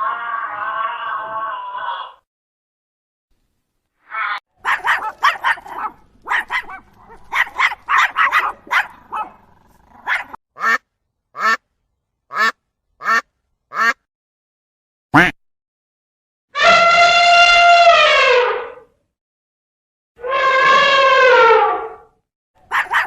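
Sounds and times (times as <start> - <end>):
ducks quacking: 10.6 - 10.8, 12.3 - 14.0.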